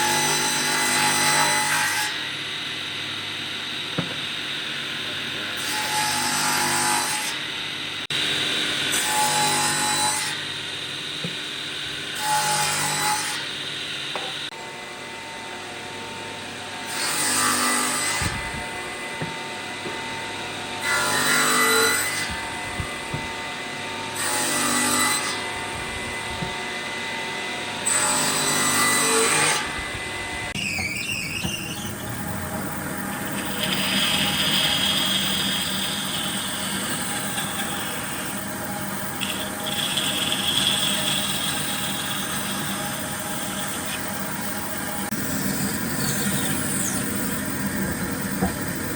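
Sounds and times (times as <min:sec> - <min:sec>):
electric woodworking tool running: 0:00.0 - 0:48.9
tool cutting wood: 0:16.9 - 0:20.1, 0:30.5 - 0:48.9.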